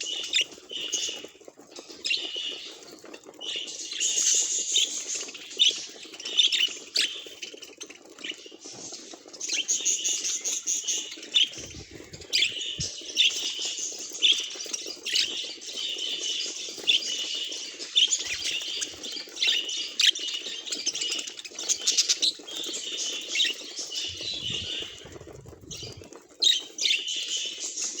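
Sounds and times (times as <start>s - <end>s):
budgerigar chattering and warbling: 11.4s - 13.0s, 24.0s - 26.1s.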